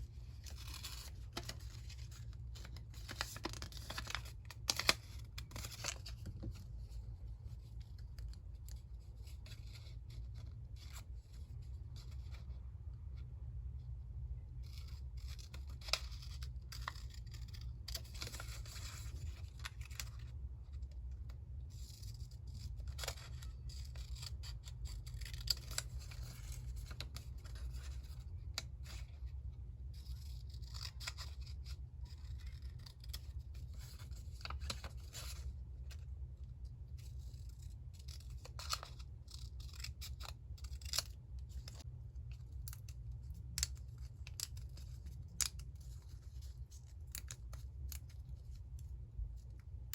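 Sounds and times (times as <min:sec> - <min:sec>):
paper rustling: 0:00.3 - 0:07.0
scissors snipping paper: 0:14.8 - 0:20.2, 0:22.8 - 0:29.1, 0:37.2 - 0:41.8.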